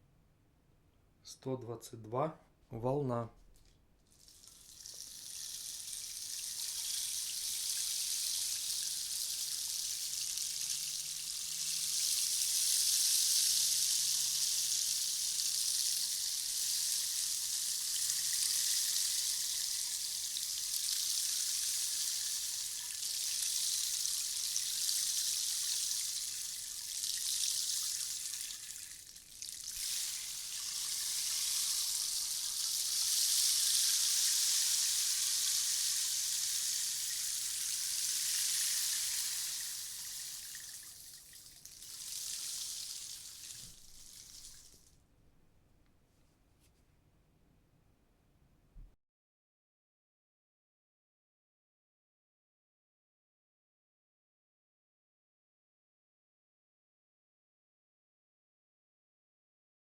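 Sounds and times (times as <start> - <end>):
rainstick hiss: 4.2 - 44.9.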